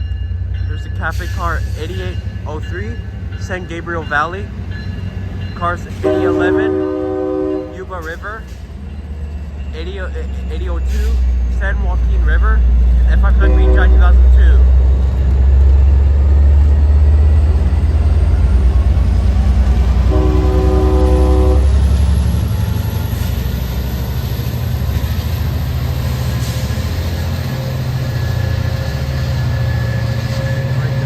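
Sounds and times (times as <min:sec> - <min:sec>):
diesel locomotive engine rumbling: 0:00.0 - 0:31.0
train horn: 0:05.9 - 0:07.8, 0:13.3 - 0:14.5, 0:20.0 - 0:22.0.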